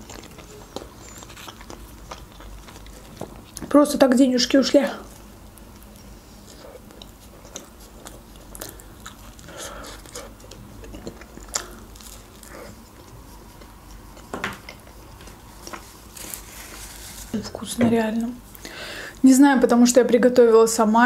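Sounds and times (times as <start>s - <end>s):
person chewing pizza crust: 0.0s - 3.7s, 4.5s - 17.4s.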